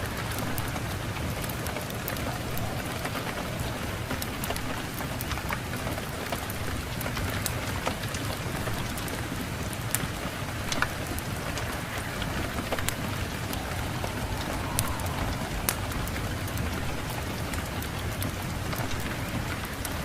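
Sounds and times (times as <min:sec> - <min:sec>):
steady rain: 0:00.0 - 0:20.0
low rumble: 0:10.2 - 0:18.6.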